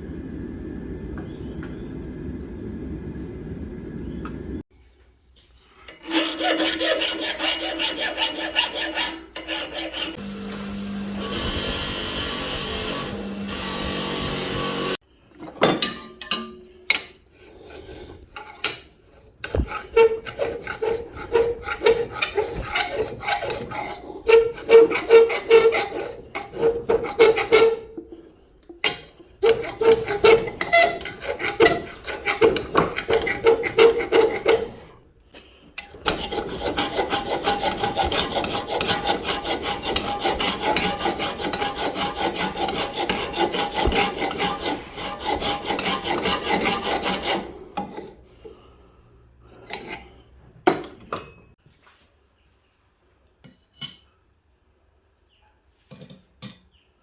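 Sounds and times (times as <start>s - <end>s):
steel scraper rasping: 5.8s - 15.0s, 19.4s - 35.0s, 35.8s - 48.2s.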